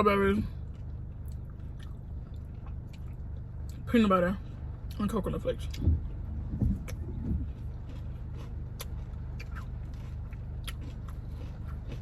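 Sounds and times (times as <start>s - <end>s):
car engine hum inside cabin: 0.0s - 12.0s
person eating mouth sounds: 6.6s - 12.0s.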